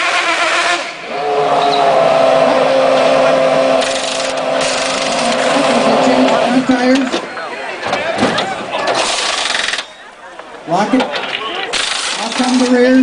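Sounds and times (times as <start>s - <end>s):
race car engine running: 0.0s - 7.2s.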